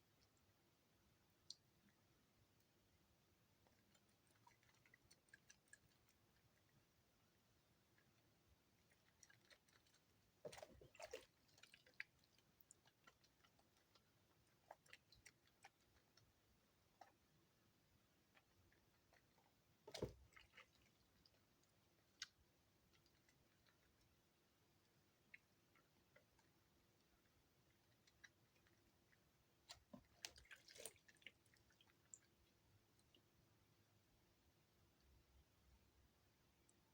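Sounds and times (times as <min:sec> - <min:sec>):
soap squelching in wet hands: 0:03.5 - 0:07.0, 0:07.8 - 0:33.4.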